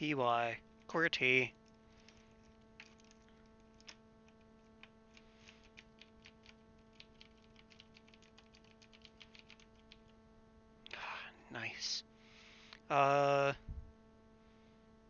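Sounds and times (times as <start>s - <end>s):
steady electrical hum: 0.0s - 15.0s
mechanical keyboard keys clicking: 2.5s - 10.0s.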